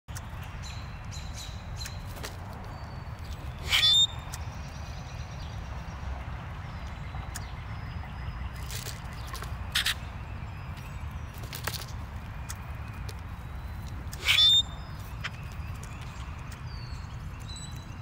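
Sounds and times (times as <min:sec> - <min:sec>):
bird whistles and chirps: 0:03.5 - 0:04.3, 0:14.2 - 0:15.4
bird harsh squawk: 0:03.6 - 0:04.2, 0:14.2 - 0:14.8.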